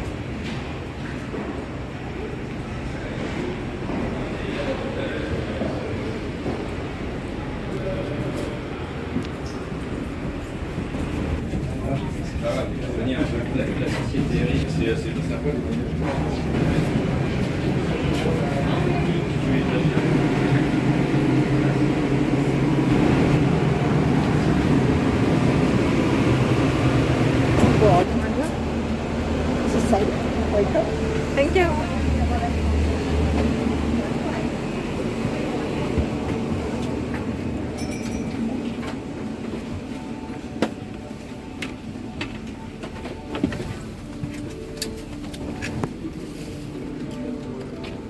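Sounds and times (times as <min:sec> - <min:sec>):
airplane cabin air-conditioning hum: 0:02.2 - 0:37.8.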